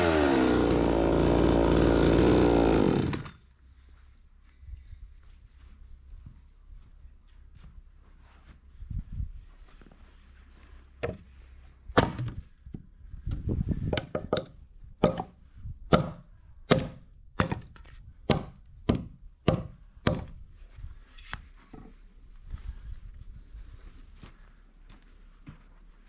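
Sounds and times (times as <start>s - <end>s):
hard strikes on wood: 12.0s - 12.4s, 13.9s - 15.3s, 15.9s - 17.7s, 18.3s - 20.4s.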